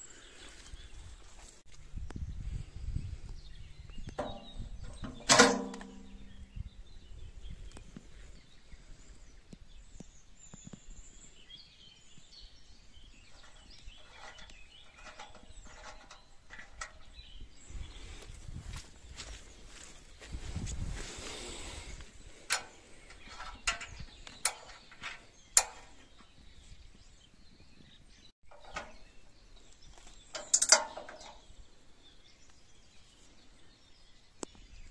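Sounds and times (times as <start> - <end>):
metal clang: 4.2 - 6.3, 30.3 - 31.5.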